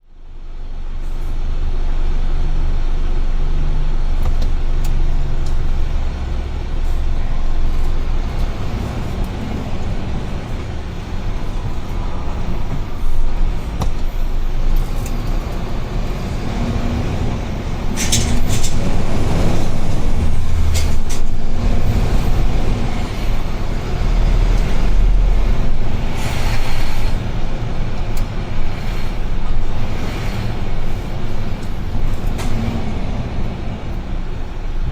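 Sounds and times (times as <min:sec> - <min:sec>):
truck diesel engine rumble: 0:00.0 - 0:34.9
air hiss: 0:17.8 - 0:33.7.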